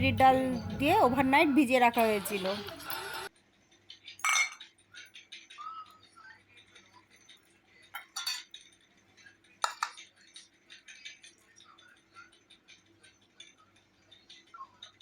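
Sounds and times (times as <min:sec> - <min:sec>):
utensils clinking against dishes: 0:02.0 - 0:03.3, 0:04.0 - 0:06.0, 0:06.7 - 0:08.8, 0:09.6 - 0:15.0.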